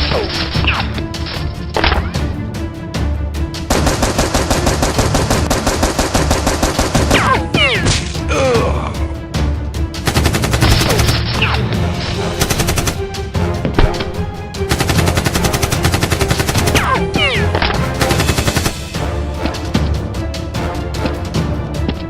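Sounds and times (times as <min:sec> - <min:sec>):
action background music: 0:00.0 - 0:22.0
automatic gunfire bursts: 0:03.7 - 0:07.2, 0:14.7 - 0:16.9.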